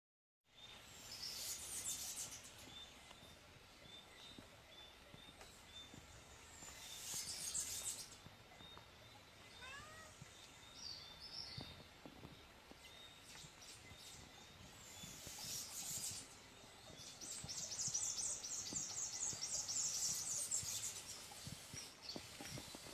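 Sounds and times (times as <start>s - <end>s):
meow-like bird call: 9.5s - 10.2s.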